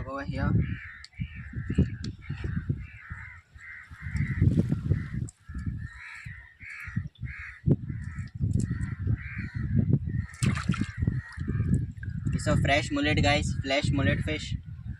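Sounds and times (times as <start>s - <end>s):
low rumbling on microphone: 0.0s - 14.9s
crows cawing: 0.6s - 12.3s.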